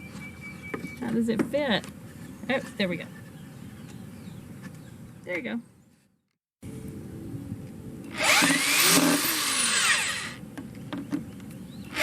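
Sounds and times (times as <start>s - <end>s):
power drill driving screw into wood: 8.1s - 10.4s.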